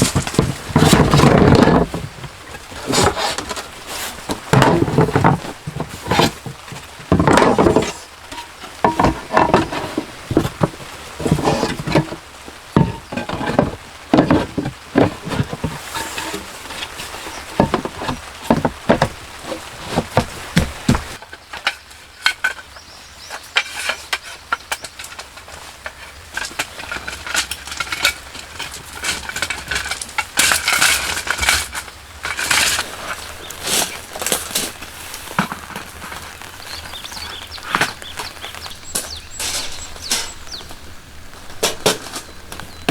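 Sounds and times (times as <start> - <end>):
cookware and utensils clinking: 36.6 - 40.8.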